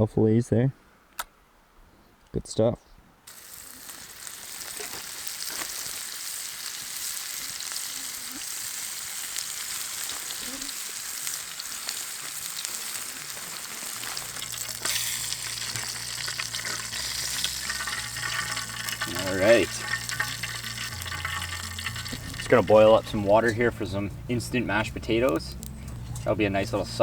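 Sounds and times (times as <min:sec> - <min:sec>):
fish sizzling in a frying pan: 0:03.3 - 0:23.1
low steady hum: 0:14.2 - 0:27.0.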